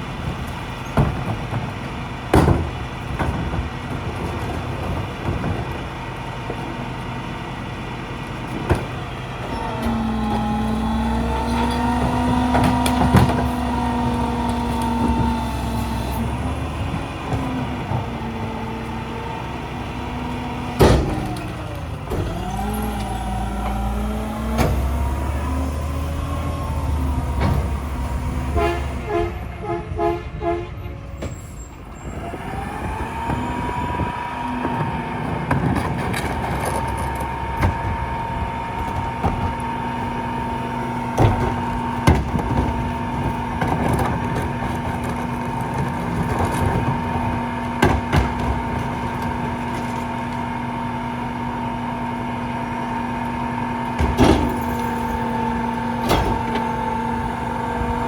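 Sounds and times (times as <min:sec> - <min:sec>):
truck engine with whine: 0:00.0 - 0:58.0
loud clanks and bangs: 0:20.6 - 0:29.0, 0:33.2 - 0:50.6, 0:53.7 - 0:58.0
garbage truck reversing beeps: 0:30.7 - 0:35.5, 0:50.2 - 0:58.0.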